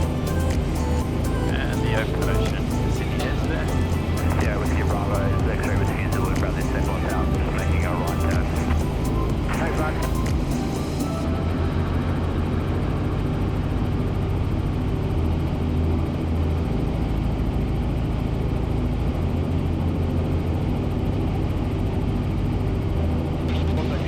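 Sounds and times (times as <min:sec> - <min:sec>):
helicopter engine and rotor drone: 0:00.0 - 0:24.0.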